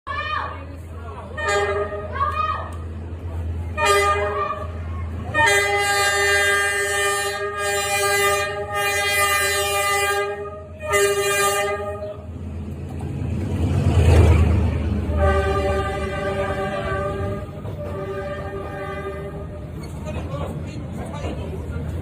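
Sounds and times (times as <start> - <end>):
train rolling rumble: 0.1 - 22.0
train horn blasts: 1.3 - 2.2, 3.7 - 12.3, 15.0 - 19.8.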